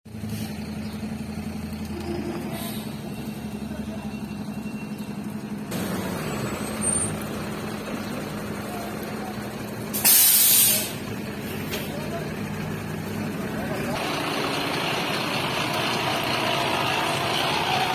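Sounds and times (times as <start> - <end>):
vehicle engine running: 0.1 - 17.9
loud sharp hiss: 10.0 - 11.0.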